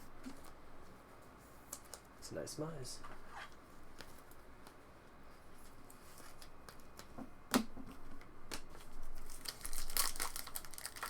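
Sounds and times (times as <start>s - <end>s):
wrapper crinkling and tearing: 9.0s - 11.0s.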